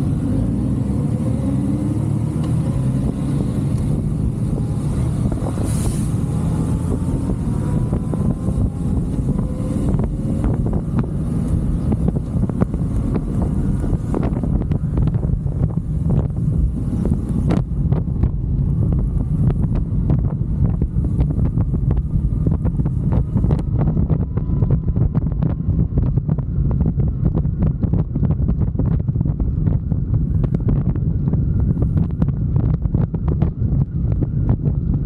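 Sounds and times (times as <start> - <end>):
wind buffeting microphone: 0.0 - 35.0
faint motorcycle engine: 6.3 - 18.5.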